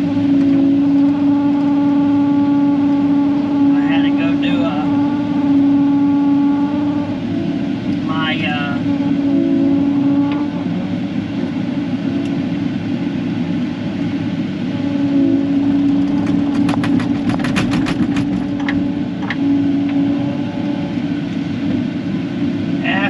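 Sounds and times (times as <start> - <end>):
excavator diesel engine running: 0.0 - 23.0
sharp clicks and clanks: 15.9 - 19.4
knocks: 16.0 - 18.8.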